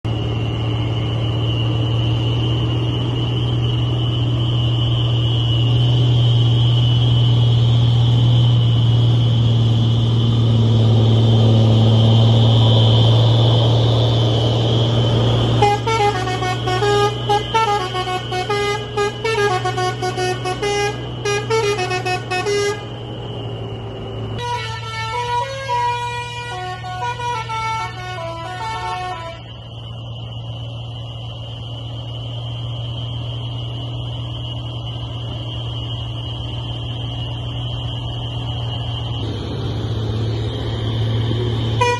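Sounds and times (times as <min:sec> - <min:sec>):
truck engine running: 0:00.0 - 0:41.9
musical horn playing a tune: 0:15.6 - 0:22.8, 0:24.4 - 0:29.4.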